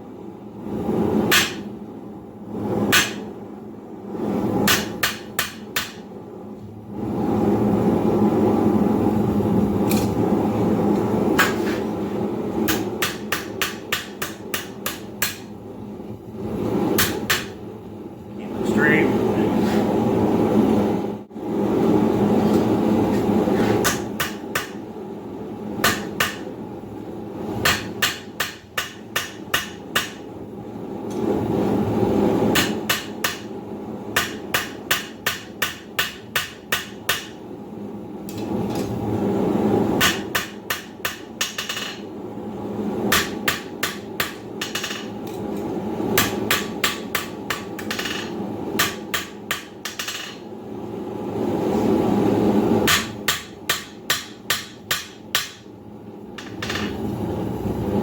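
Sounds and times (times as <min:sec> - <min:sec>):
hammer striking steel on anvil: 0:01.3 - 0:01.7, 0:02.9 - 0:03.2, 0:04.7 - 0:06.0, 0:12.7 - 0:15.5, 0:23.8 - 0:24.8, 0:25.8 - 0:26.5, 0:27.6 - 0:30.2, 0:32.6 - 0:33.5, 0:34.2 - 0:37.4, 0:40.0 - 0:42.0, 0:43.1 - 0:45.0, 0:46.2 - 0:50.4, 0:52.9 - 0:55.7.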